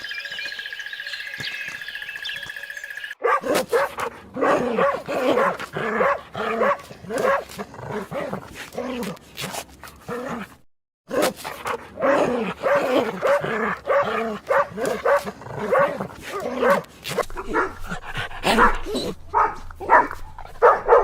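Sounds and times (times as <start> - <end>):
birds chirping: 0.0 - 3.4
dog barking: 3.2 - 8.4, 11.1 - 21.0.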